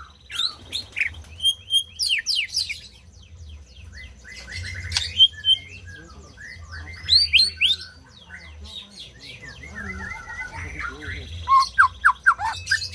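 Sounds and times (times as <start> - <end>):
bird singing whistled phrases: 4.2 - 8.0, 9.2 - 12.9.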